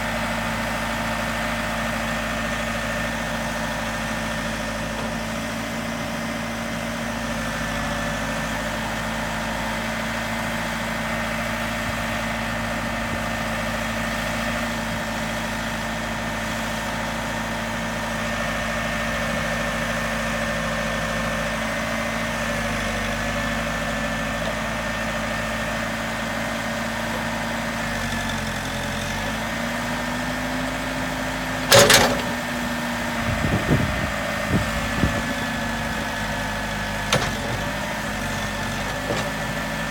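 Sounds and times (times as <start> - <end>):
diesel engine idling: 0.0 - 39.9
loud metal clank: 31.7 - 32.4.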